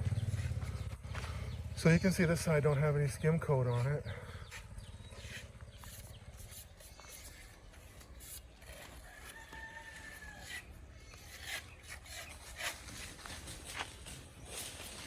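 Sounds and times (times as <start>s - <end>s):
rasping scraping sounds: 0.0s - 1.4s, 3.4s - 15.0s
rooster crowing: 9.0s - 10.7s.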